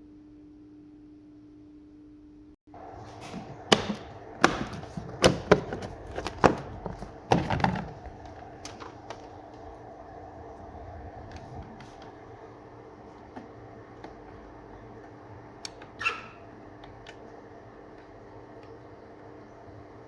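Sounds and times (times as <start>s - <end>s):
faint steady hum: 0.0s - 20.0s
sharp knocks and clicks: 3.3s - 9.2s.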